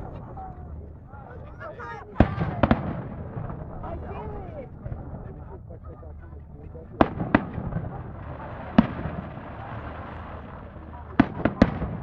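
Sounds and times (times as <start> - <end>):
fireworks bangs: 2.2 - 4.0, 7.0 - 12.0.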